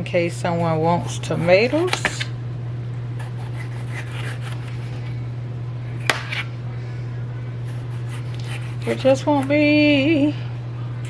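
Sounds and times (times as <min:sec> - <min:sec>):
steady low hum: 0:00.0 - 0:11.0
knife slicing tomatoes: 0:03.2 - 0:04.8, 0:06.0 - 0:06.5.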